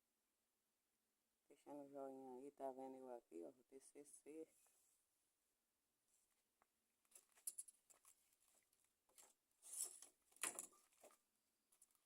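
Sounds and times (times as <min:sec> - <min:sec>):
wooden sticks rustling and scraping: 0:07.1 - 0:12.0.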